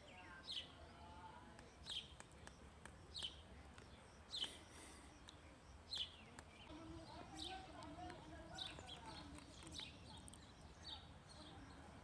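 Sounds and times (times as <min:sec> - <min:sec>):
bird chirping: 0:00.0 - 0:12.0
faint background noise: 0:00.0 - 0:12.0.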